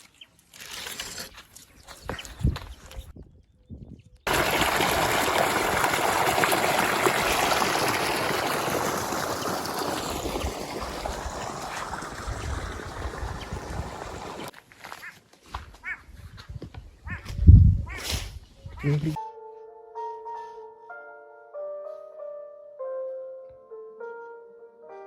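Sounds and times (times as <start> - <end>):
running water: 4.3 - 14.5.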